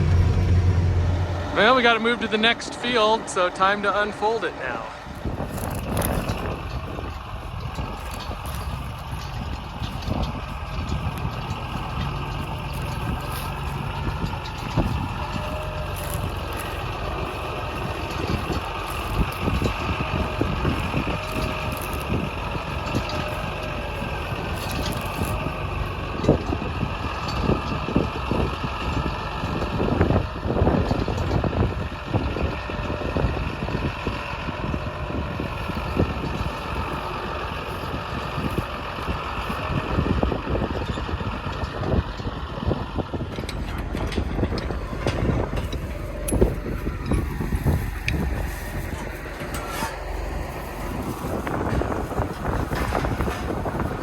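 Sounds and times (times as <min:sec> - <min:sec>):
metal clanks and knocks: 0:00.0 - 0:33.0, 0:43.0 - 0:54.0
tractor engine running: 0:00.0 - 0:54.0.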